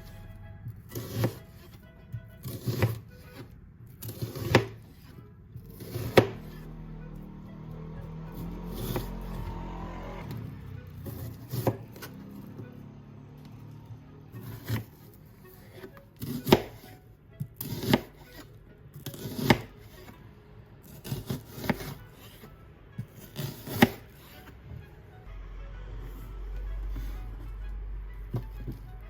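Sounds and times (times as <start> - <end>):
knife slicing onion: 0.8 - 6.8, 8.3 - 12.6, 14.3 - 20.1, 20.8 - 24.4
knife striking cutting board: 1.0 - 1.7, 4.0 - 4.8, 5.7 - 6.5, 15.8 - 16.9, 17.6 - 18.4, 19.0 - 20.0, 21.0 - 22.0, 23.2 - 24.1.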